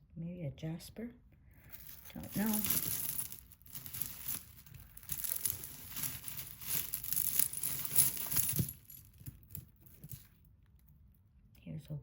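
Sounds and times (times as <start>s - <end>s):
packing material crinkling: 1.8s - 9.1s.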